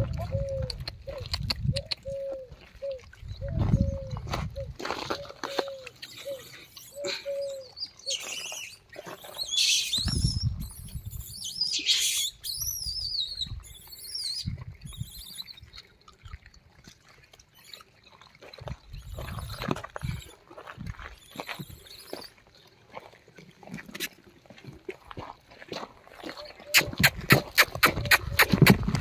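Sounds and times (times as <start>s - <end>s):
birds wavering chirps: 0.3s - 15.8s.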